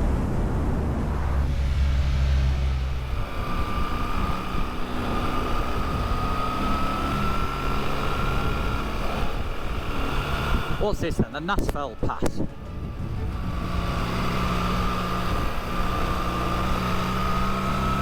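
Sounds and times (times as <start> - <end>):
motorcycle engine: 0.0 - 18.0
thin whine rising in pitch: 0.0 - 18.0
wind noise: 0.0 - 18.0.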